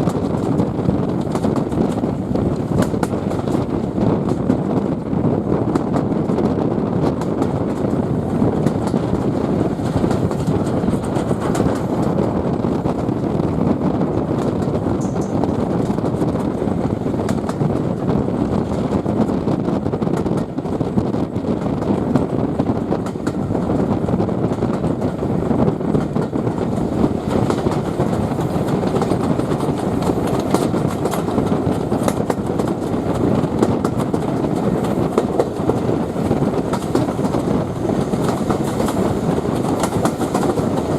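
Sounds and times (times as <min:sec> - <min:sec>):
rumble of wheels on track: 0:00.0 - 0:40.9.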